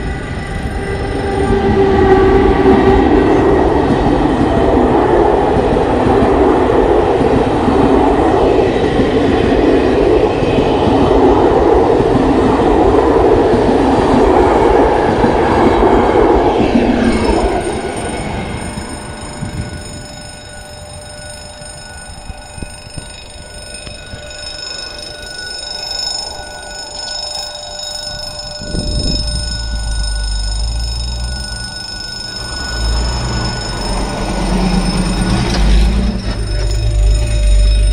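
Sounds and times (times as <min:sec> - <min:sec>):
crossing warning signal ringing: 0:00.0 - 0:37.9
passenger train rolling: 0:00.0 - 0:37.9
truck engine rumbling: 0:28.2 - 0:37.9.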